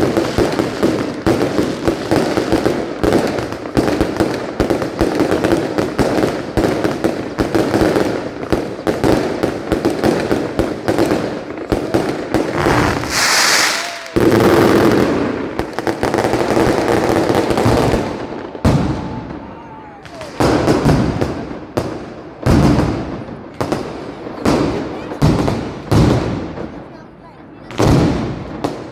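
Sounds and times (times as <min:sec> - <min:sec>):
firecracker bangs: 0:00.0 - 0:26.9, 0:27.7 - 0:28.9
high hiss: 0:12.6 - 0:14.2.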